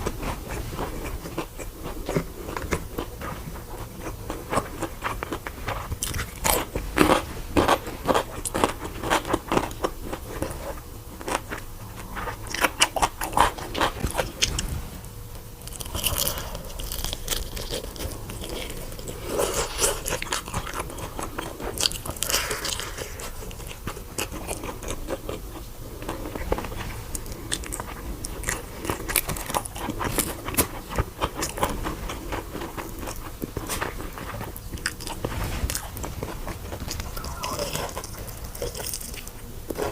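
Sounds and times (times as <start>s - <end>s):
crunchy food crunching: 0.0s - 14.7s, 15.6s - 39.9s
wet chewing: 15.6s - 39.9s.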